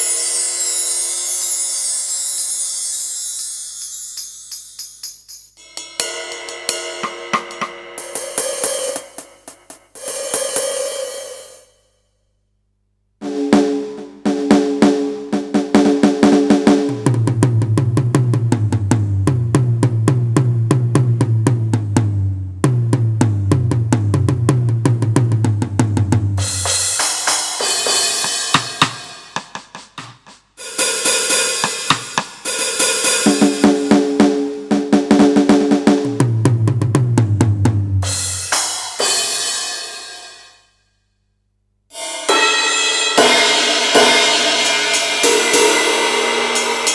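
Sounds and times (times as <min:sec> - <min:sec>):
cymbal crashes: 0:00.0 - 0:04.8, 0:05.6 - 0:12.0, 0:26.4 - 0:29.6, 0:30.6 - 0:34.0, 0:38.1 - 0:40.6, 0:41.9 - 0:46.9
electronic drum fills: 0:05.6 - 0:11.6, 0:13.2 - 0:39.2, 0:41.9 - 0:46.9.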